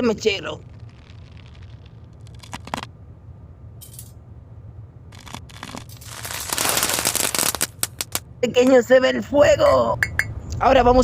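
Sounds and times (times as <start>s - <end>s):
lighter flame rushing and crackling: 5.2s - 8.2s.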